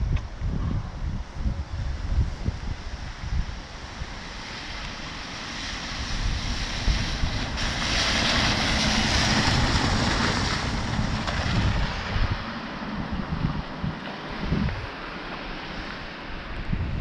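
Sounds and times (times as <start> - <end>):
wind buffeting microphone: 0.0 - 17.0
rushing wet hiss: 1.6 - 13.0.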